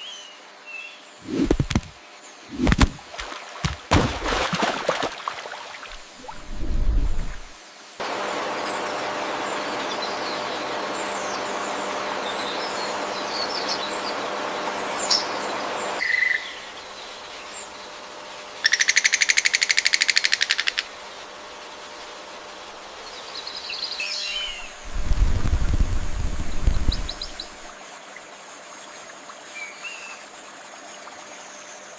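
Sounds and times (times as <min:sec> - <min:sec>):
flowing water rushing: 0:01.2 - 0:08.2, 0:24.5 - 0:29.5
low rumble: 0:05.9 - 0:07.6.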